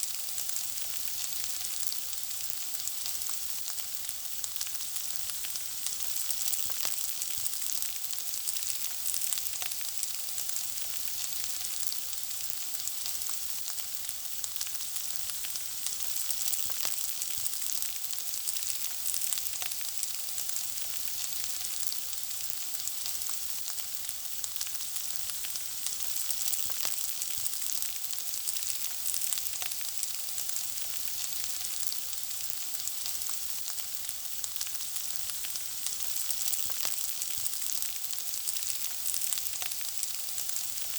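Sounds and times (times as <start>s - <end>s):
food frying and sizzling: 0.0s - 40.9s.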